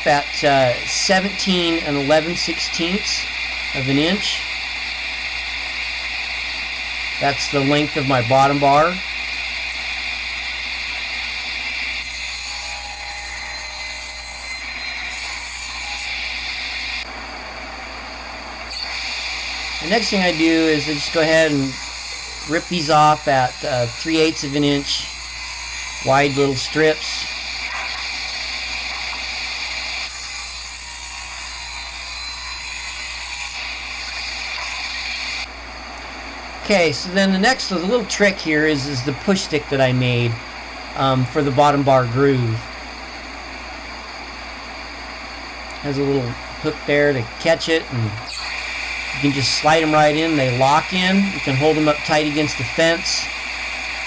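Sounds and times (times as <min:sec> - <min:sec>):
power saw cutting board: 0:00.0 - 0:17.2, 0:18.6 - 0:35.5, 0:45.7 - 0:54.0.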